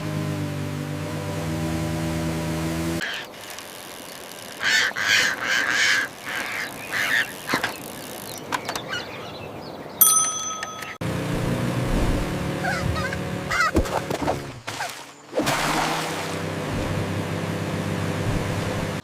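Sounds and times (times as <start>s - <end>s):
squawk-like calls: 4.6s - 7.7s
bell-like ring: 10.0s - 11.0s.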